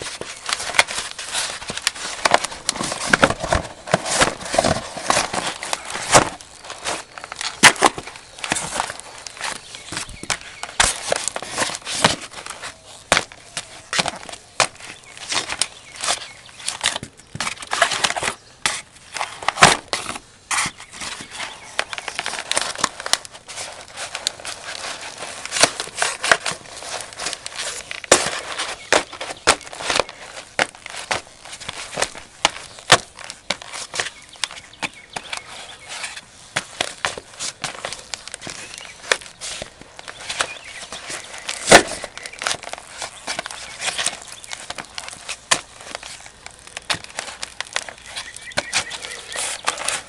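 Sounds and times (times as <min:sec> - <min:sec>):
boots crushing cardboard boxes: 0:00.0 - 0:50.0.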